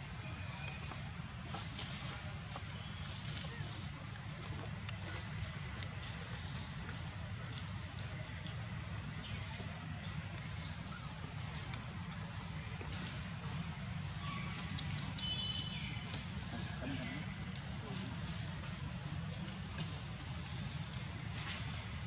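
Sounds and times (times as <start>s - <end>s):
low outdoor rumble: 0.0s - 22.0s
bird chirping: 13.6s - 17.6s.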